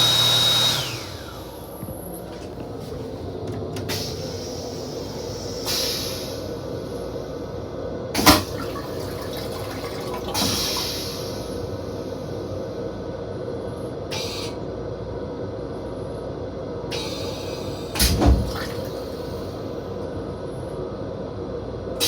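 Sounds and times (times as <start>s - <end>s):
toilet flush hissing: 0.0s - 7.3s, 8.2s - 12.6s, 14.1s - 14.6s, 16.9s - 20.0s
railcar running rumble: 1.2s - 22.0s.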